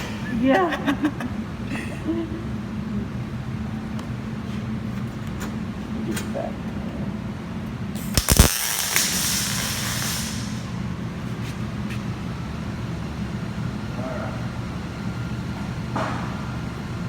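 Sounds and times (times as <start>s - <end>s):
steady low hum: 0.0s - 17.0s
sharp clicks: 8.0s - 9.6s
welding arc hissing and crackling: 8.0s - 11.0s.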